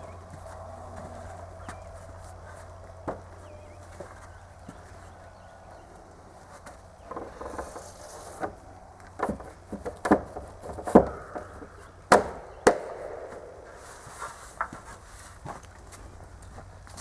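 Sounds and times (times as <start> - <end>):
wooden board knocks and thuds: 9.2 - 13.8.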